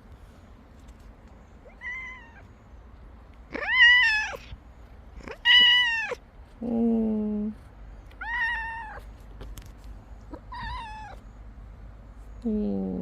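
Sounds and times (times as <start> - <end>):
cat meowing: 1.6 - 2.5, 3.5 - 4.6, 5.2 - 6.2, 8.2 - 9.1, 10.3 - 11.2.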